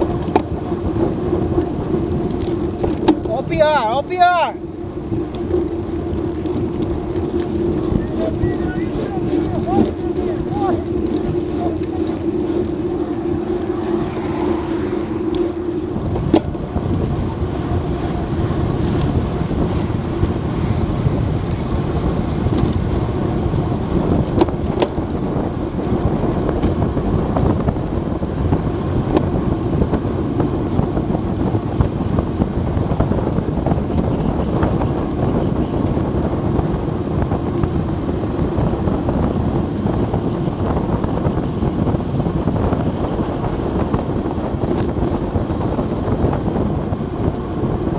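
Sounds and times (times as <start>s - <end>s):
wind rushing over microphone: 0.0s - 47.9s.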